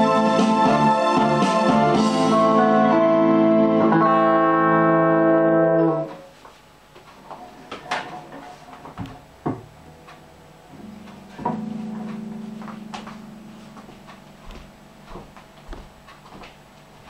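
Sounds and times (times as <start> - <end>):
synthesizer chord: 0.0 - 6.2, 9.8 - 15.1.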